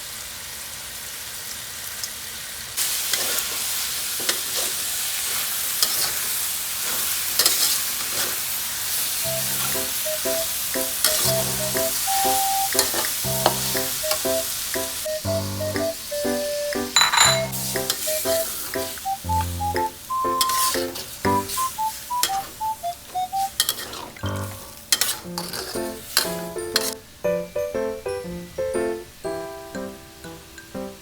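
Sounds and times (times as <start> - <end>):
meat sizzling in a pan: 0.0 - 27.0
light background music: 9.2 - 31.0
utensil scraping a pan: 23.5 - 24.2, 24.9 - 27.0.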